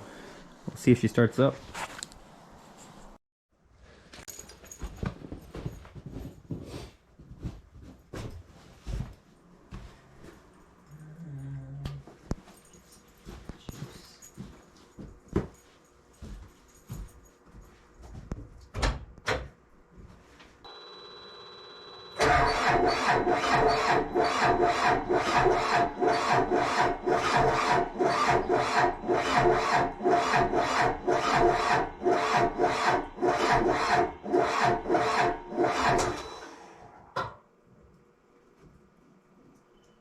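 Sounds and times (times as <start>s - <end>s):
electronic tone: 20.7s - 23.0s
diesel engine cranking: 21.9s - 36.6s.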